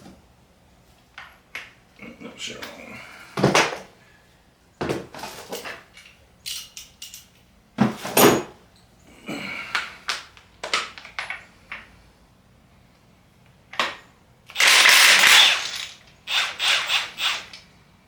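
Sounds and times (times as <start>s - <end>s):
metal tools clanking: 5.2s - 8.6s.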